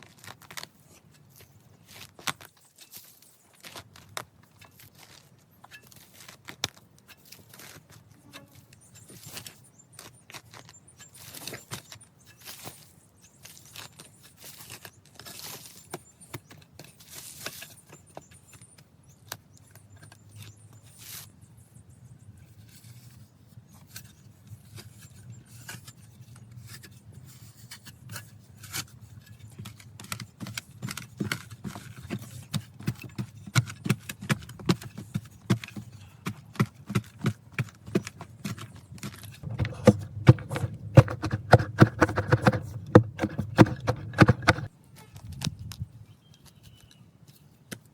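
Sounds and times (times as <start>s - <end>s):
tools knocking and scraping: 29.2s - 44.7s
fast rhythmic tool strokes: 39.4s - 44.7s.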